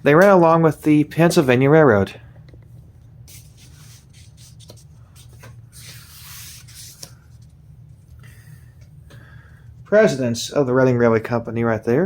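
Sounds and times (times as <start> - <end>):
steady low hum: 0.0 - 12.0
book pages rustling: 3.3 - 8.2.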